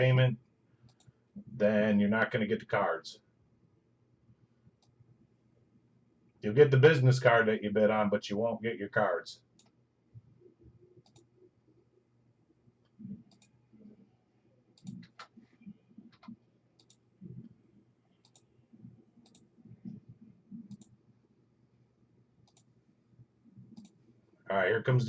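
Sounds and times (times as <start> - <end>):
computer mouse clicks: 0.8 - 1.2, 11.0 - 11.3, 12.8 - 13.6, 14.8 - 15.4, 16.0 - 17.6, 18.2 - 18.5, 19.2 - 21.0, 22.4 - 22.7, 23.6 - 24.0.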